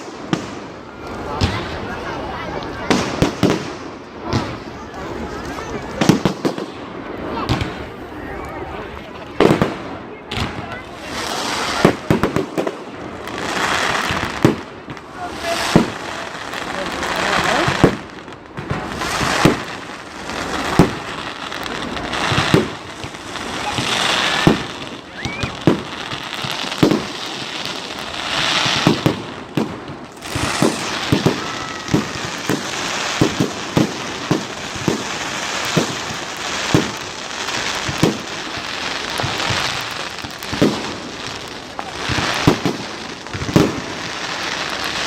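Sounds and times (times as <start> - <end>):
crackling hiss of fireworks: 0.0 - 45.0
firework shell bursts: 30.1 - 35.0.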